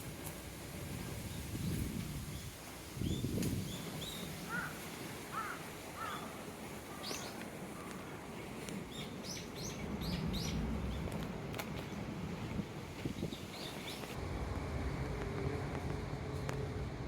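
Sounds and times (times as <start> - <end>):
small birds chirping: 1.4 - 11.2
low steady rumble: 14.2 - 17.0.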